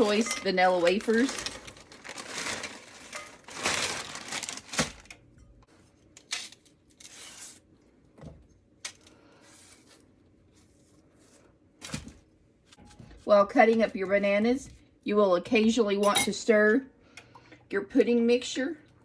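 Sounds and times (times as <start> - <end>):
rustling: 0.0 - 5.1.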